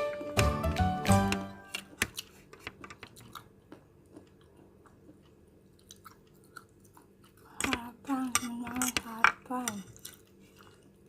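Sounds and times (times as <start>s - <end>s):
chewing crunchy noodles: 1.8s - 7.6s, 9.9s - 11.0s.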